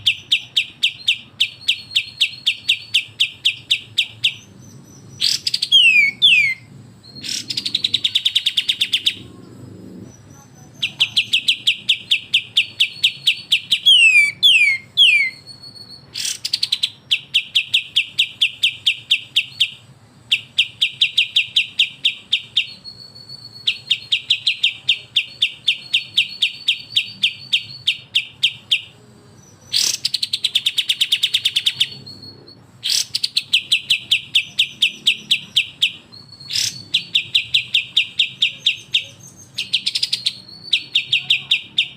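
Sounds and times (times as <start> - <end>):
songbirds rapid chattering: 0.0 - 15.4, 16.1 - 22.9, 23.7 - 41.9
descending whistled bird notes: 0.1 - 9.2, 10.1 - 22.0.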